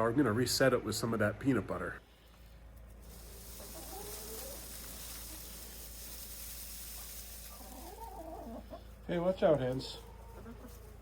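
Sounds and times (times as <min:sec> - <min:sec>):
steady hiss: 0:02.9 - 0:09.8
hens clucking: 0:03.0 - 0:11.0.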